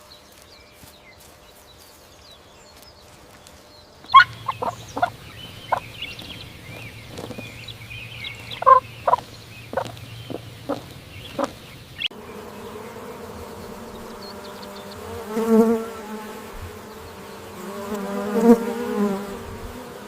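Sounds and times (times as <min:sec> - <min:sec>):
bee buzzing: 0:04.0 - 0:20.0
fowl clucking: 0:04.1 - 0:05.9, 0:08.5 - 0:11.6.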